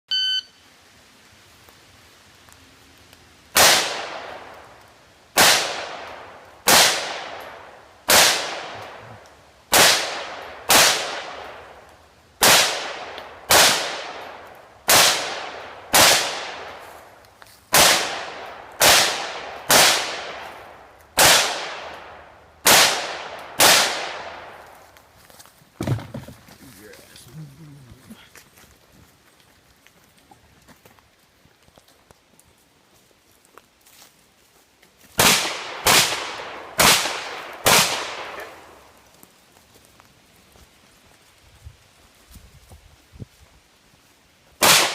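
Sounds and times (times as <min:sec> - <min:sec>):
gunshots with echo: 0:05.4 - 0:07.4, 0:08.1 - 0:09.1, 0:09.7 - 0:11.5, 0:12.4 - 0:14.2, 0:14.9 - 0:16.7, 0:17.8 - 0:20.4, 0:21.2 - 0:22.0, 0:22.6 - 0:24.6, 0:35.2 - 0:38.7, 0:44.6 - 0:44.9.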